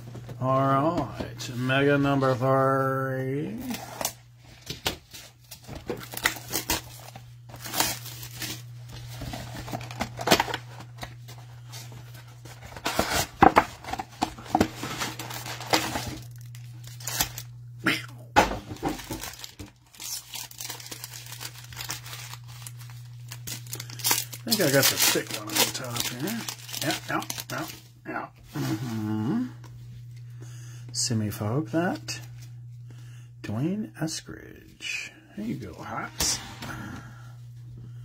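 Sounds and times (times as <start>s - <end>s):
steady low hum: 0.0s - 38.0s
packs being torn open: 4.8s - 8.7s, 9.3s - 11.2s, 12.8s - 17.5s, 18.7s - 27.8s
plastic wrap crinkling: 5.2s - 11.2s, 12.0s - 17.5s, 18.7s - 27.8s.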